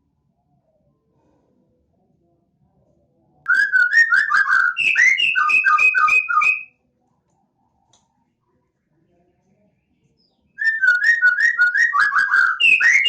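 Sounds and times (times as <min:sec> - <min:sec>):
songbird singing: 0:03.5 - 0:06.7, 0:10.2 - 0:13.0.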